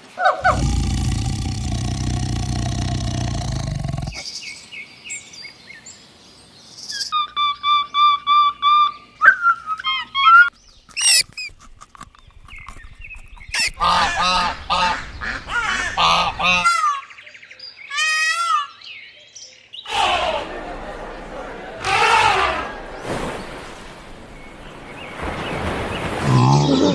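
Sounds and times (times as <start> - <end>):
geese honking: 13.8 - 16.8, 21.7 - 22.9.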